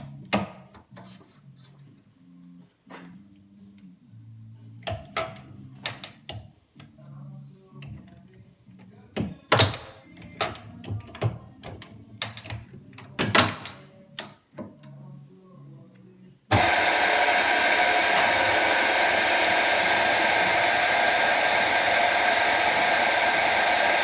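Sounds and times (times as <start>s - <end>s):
low machine hum: 16.5s - 24.0s.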